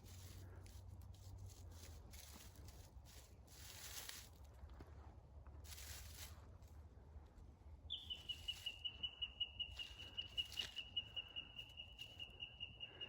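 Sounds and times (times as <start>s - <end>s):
leaves rustling: 0.0s - 4.6s, 5.6s - 6.7s.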